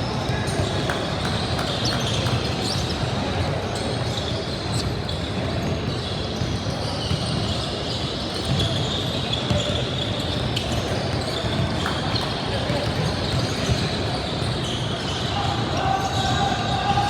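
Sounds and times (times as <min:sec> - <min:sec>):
din of crowd and players: 0:00.0 - 0:17.0
basketball bouncing on court: 0:00.2 - 0:03.0, 0:04.1 - 0:14.7.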